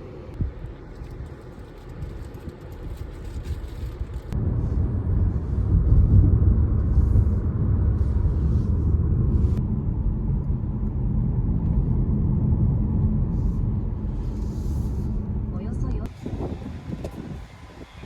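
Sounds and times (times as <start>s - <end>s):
car road and engine noise: 0.0s - 18.0s.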